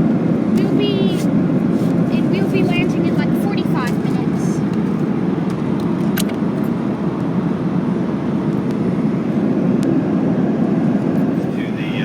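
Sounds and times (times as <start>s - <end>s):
airplane cabin engine rush: 0.0s - 12.0s.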